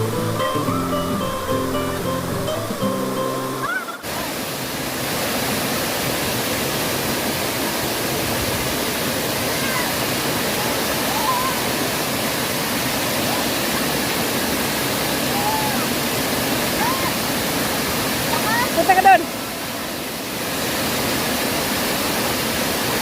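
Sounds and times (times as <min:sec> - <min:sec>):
background music: 0:00.0 - 0:03.7
waterfall rushing: 0:00.0 - 0:23.0.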